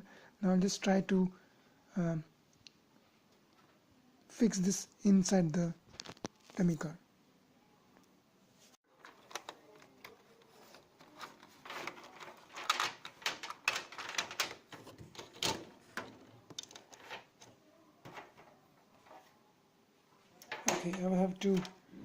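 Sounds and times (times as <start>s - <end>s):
small plastic parts clicking: 9.0s - 18.4s.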